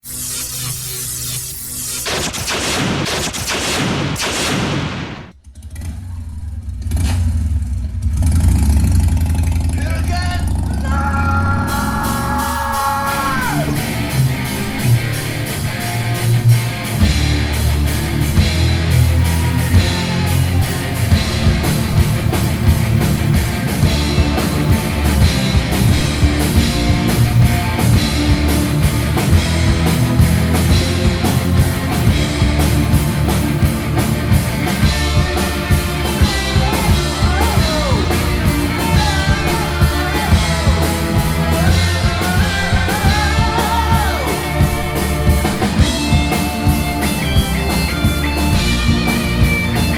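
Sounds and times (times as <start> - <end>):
heavy bass: 2.0 - 49.9
electric guitar: 10.6 - 49.9
steady drum beat: 11.0 - 49.9.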